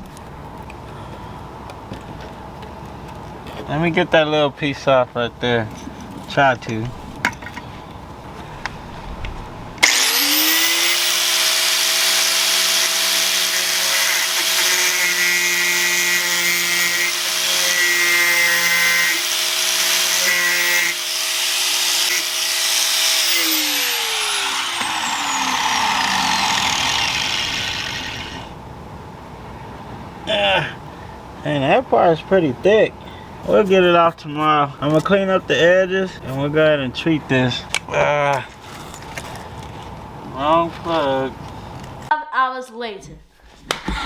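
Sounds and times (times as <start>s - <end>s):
grinder winding down whine: 9.8s - 16.0s, 18.4s - 28.5s
angle grinder cutting steel: 9.8s - 28.6s.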